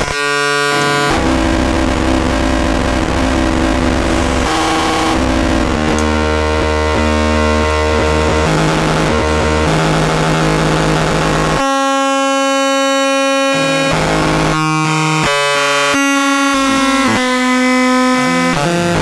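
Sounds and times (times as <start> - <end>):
synth buzzing drone: 0.5 - 11.8.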